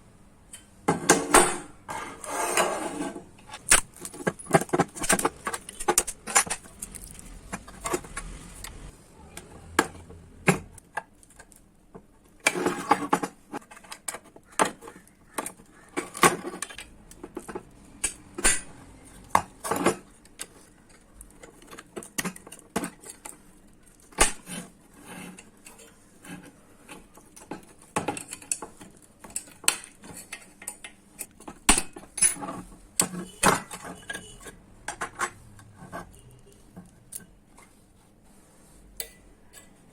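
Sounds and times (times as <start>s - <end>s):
metallic tool clinks and taps: 39.0s - 39.8s.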